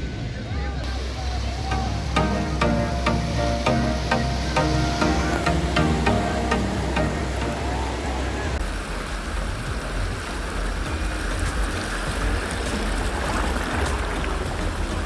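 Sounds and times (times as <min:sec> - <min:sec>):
sea surf rushing: 0:00.9 - 0:08.6.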